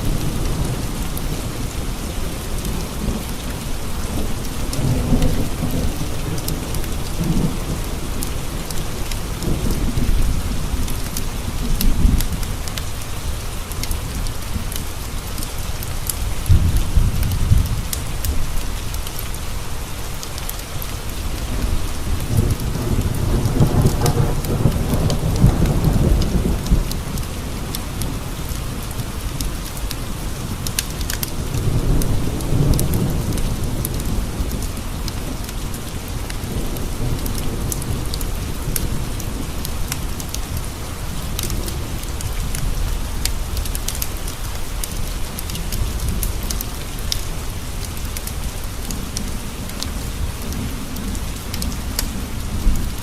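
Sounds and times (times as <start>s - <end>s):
rain on window panes: 0.0s - 53.0s
low rolls of thunder: 21.6s - 28.2s.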